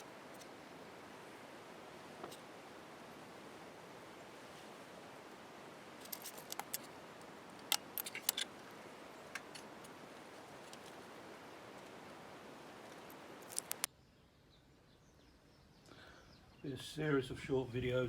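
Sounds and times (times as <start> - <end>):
steady hiss: 0.0 - 13.9.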